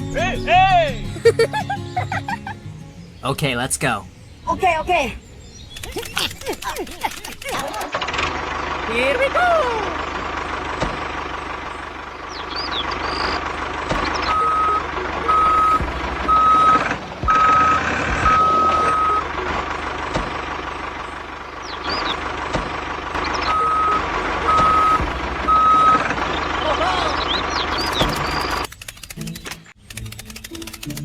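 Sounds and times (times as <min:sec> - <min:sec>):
electronic reversing beeper: 0:14.2 - 0:19.3, 0:23.2 - 0:26.2.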